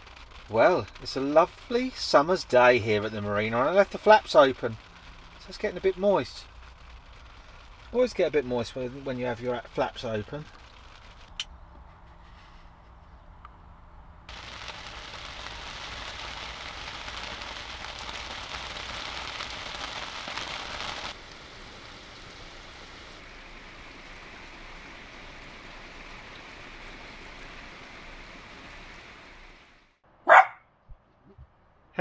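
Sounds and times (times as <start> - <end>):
steady rain falling: 0.0 - 11.5, 14.3 - 30.0.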